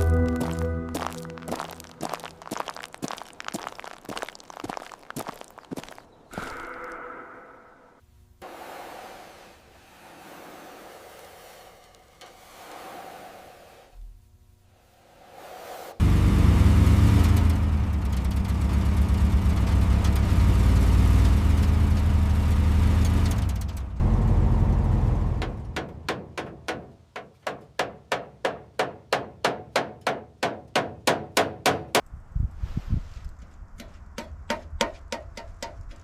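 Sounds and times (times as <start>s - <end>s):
engine humming: 16.0s - 26.1s.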